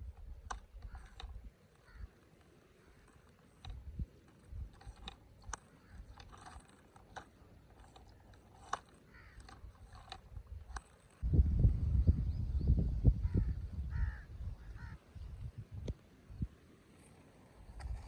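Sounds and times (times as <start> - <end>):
distant crows cawing: 0.8 - 3.5, 5.6 - 6.7, 8.6 - 10.2, 13.2 - 15.2.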